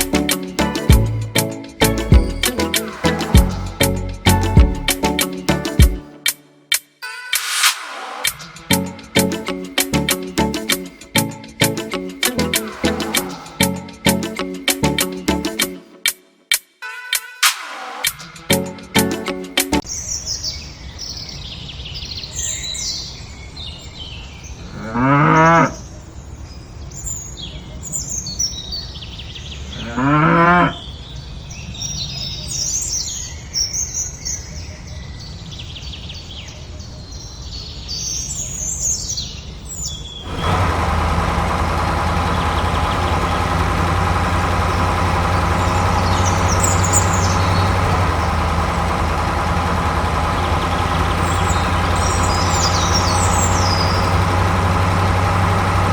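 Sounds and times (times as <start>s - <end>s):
engine running: 0.0s - 6.0s, 8.0s - 15.6s, 40.3s - 55.9s
birds chirping: 0.0s - 6.4s, 38.0s - 55.9s
cow mooing: 24.7s - 25.8s, 29.8s - 30.8s.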